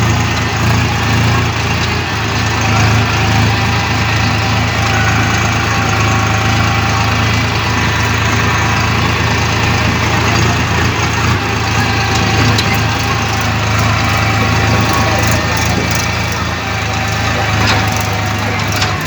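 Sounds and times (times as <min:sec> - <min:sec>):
tractor engine idling: 0:00.0 - 0:19.0.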